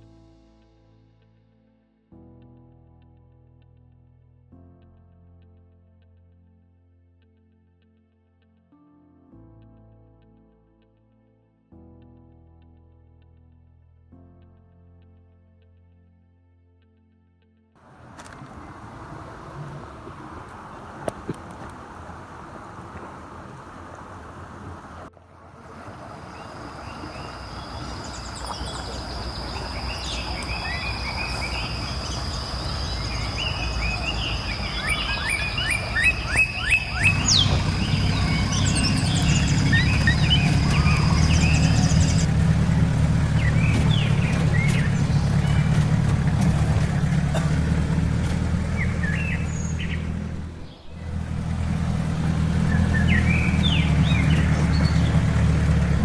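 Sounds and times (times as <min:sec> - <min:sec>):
birds chirping: 0:26.1 - 0:56.0.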